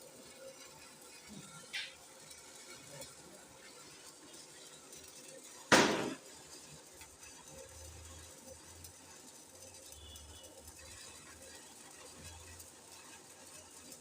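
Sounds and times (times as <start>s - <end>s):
sharp bang: 5.7s - 6.2s.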